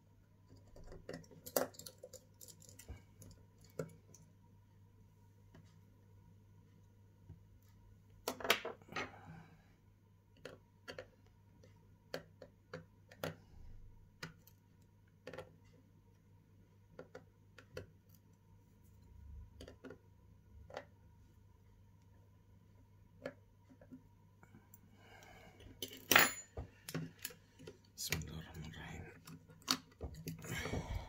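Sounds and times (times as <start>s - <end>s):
small tools clicking and tapping: 0.5s - 4.3s, 10.4s - 13.4s, 29.2s - 30.6s.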